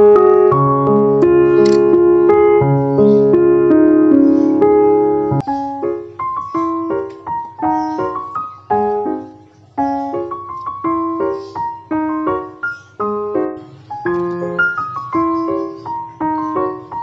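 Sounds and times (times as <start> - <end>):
calm piano melody: 0.0 - 17.0.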